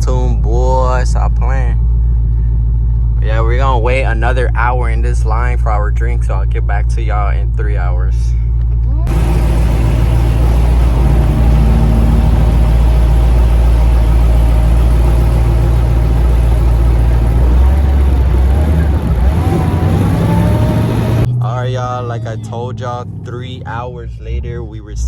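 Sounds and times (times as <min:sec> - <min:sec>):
car engine idling loudly: 0:09.1 - 0:24.3.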